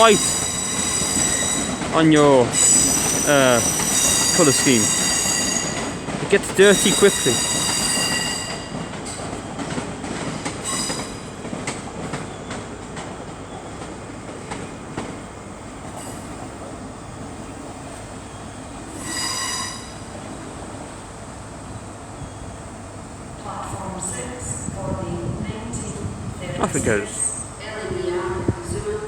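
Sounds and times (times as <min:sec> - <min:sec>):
high squeal: 0:00.0 - 0:05.9, 0:06.6 - 0:08.6
electric train and rail noise: 0:00.0 - 0:29.0.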